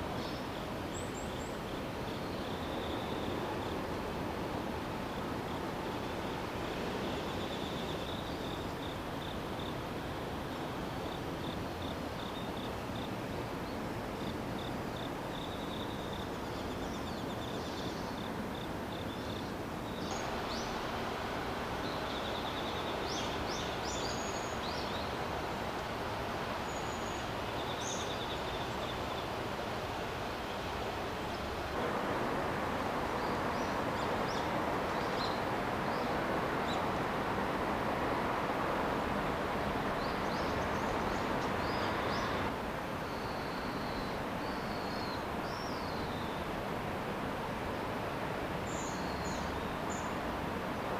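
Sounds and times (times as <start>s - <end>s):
insects trilling: 5.0s - 13.2s, 14.2s - 30.0s
steady rushing noise: 19.6s - 43.0s.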